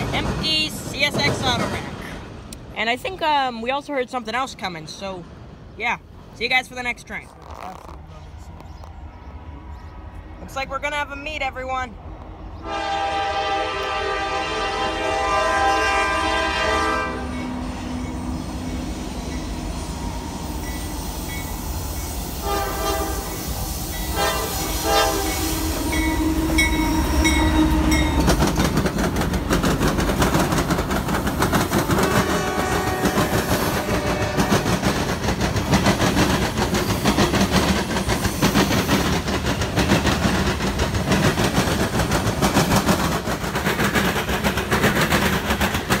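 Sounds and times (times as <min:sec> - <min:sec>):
locomotive air horn blasts: 0:12.6 - 0:17.4, 0:22.3 - 0:23.5, 0:24.1 - 0:28.1, 0:32.0 - 0:34.6
train wheels clacking on rails: 0:15.3 - 0:46.0.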